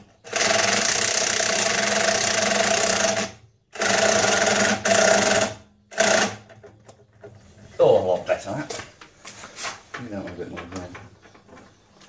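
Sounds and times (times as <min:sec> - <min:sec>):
power tool running: 0:00.2 - 0:06.5.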